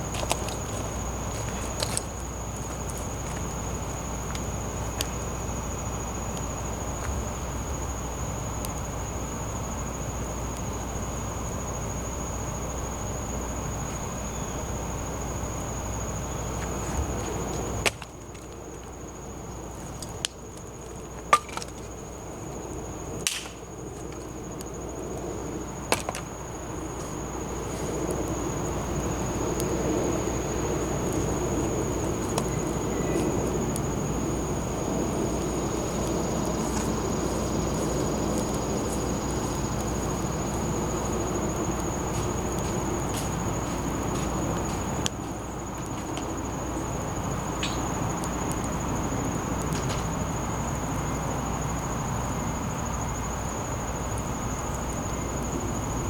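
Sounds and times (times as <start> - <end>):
campfire crackling and popping: 0.0 - 7.8, 16.4 - 50.3
fire rushing: 0.0 - 51.5.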